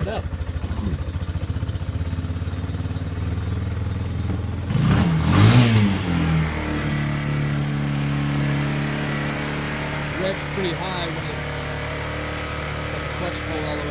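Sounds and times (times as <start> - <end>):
engine puttering: 0.0 - 13.9.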